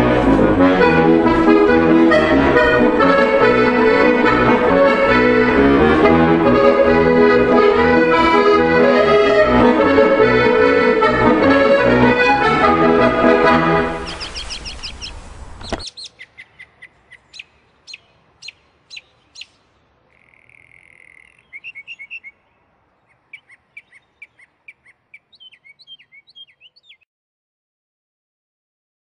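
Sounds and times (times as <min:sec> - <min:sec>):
accordion music: 0:00.0 - 0:14.5
songbird chirping and trilling: 0:13.9 - 0:27.1.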